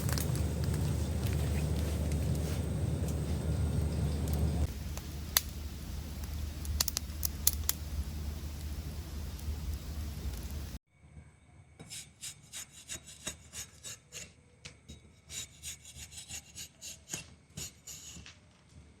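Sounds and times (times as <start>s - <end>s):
hand tool rasping on wood: 12.2s - 14.2s, 15.3s - 18.2s.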